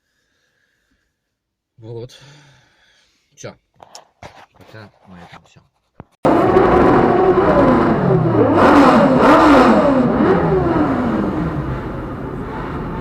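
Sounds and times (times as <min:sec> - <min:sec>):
vehicle engine revving: 0:06.3 - 0:13.0.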